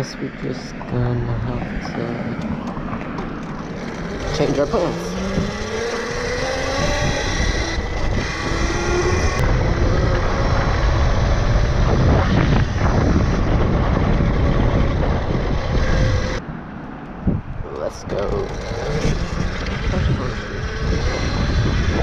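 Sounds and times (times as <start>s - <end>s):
wind and tyre noise: 0.0s - 22.0s
electric motor whine: 3.4s - 16.4s, 18.4s - 22.0s.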